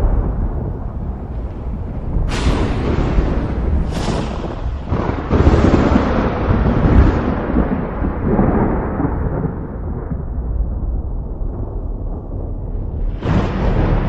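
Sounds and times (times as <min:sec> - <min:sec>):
thunder clap and rumble: 0:00.0 - 0:14.0.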